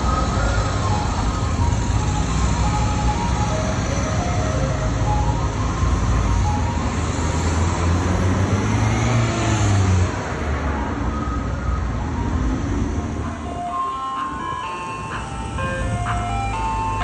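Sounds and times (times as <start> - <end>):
road noise: 0.0 - 17.0
vehicle engine low rumble: 10.5 - 17.0.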